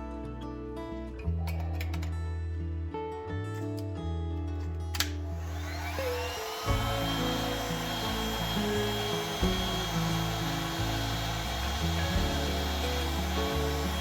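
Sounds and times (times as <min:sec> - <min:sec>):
background music: 0:00.0 - 0:14.0
blower switch click: 0:05.0 - 0:06.8
electric blower motor whine: 0:05.2 - 0:14.0.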